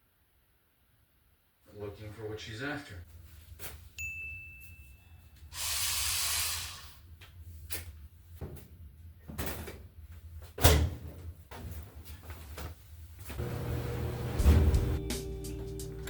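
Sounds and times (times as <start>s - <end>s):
loud hissing: 5.6s - 7.0s.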